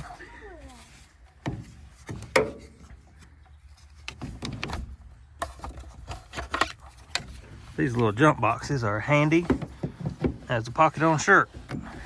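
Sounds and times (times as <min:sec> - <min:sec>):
sharp knocks and clunks: 0:01.4 - 0:03.0, 0:09.3 - 0:12.0.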